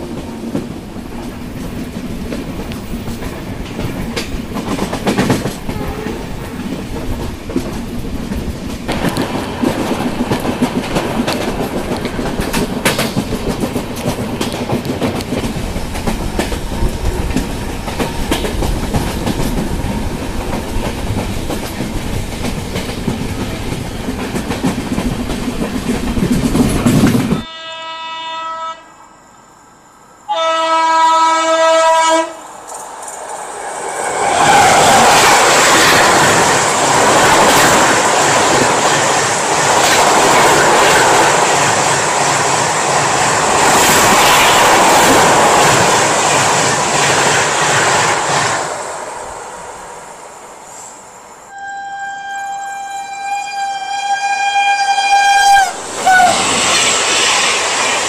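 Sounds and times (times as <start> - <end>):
clickety-clack of rail joints: 0.0 - 27.5, 32.6 - 49.1
passing train rush: 0.0 - 58.0
train wheel and rail noise: 0.0 - 58.0
locomotive horn: 5.7 - 6.4, 27.4 - 29.0, 30.3 - 32.4, 51.5 - 56.4.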